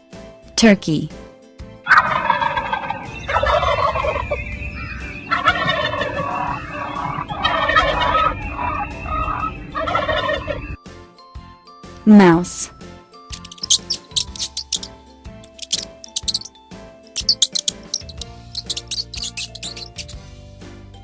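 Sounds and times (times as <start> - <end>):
turkey gobbling: 1.9 - 10.8, 13.4 - 14.9, 15.5 - 16.5, 17.2 - 20.1.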